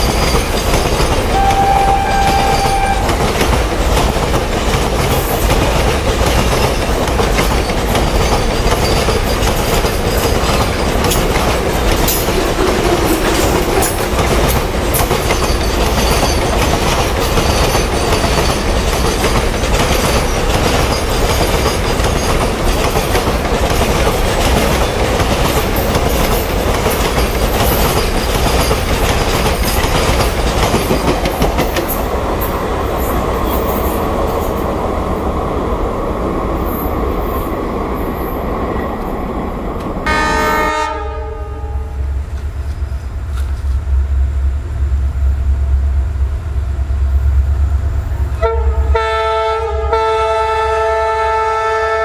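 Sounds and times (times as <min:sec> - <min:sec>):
freight wagons clattering over rails: 0:00.0 - 0:34.7
locomotive horn blast: 0:01.3 - 0:03.4, 0:40.0 - 0:42.0, 0:48.4 - 0:52.0.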